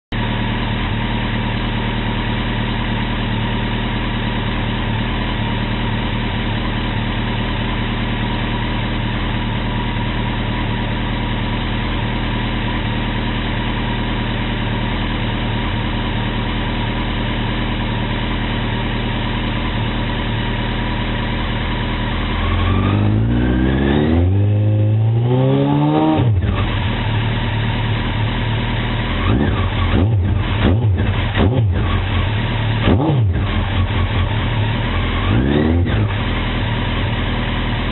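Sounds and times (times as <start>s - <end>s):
motorcycle engine idling and revving: 0.1s - 37.9s.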